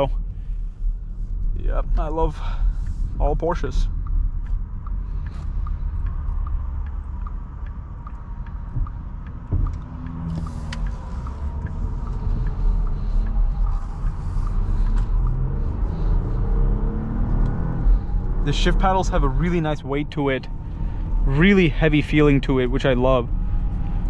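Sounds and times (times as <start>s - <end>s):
car cabin rumble on wet road: 1.3s - 16.4s
light ticking: 1.3s - 21.2s.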